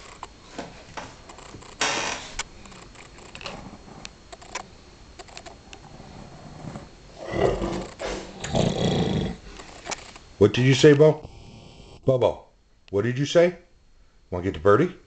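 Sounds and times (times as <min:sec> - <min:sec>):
dog grumbling: 0:05.8 - 0:09.4.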